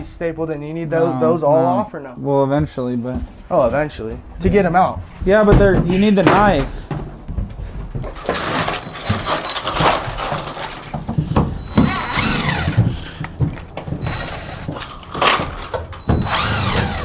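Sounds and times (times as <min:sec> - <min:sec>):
rattling and knocks: 0:03.2 - 0:17.0
cordless drill motor whine: 0:11.2 - 0:17.0.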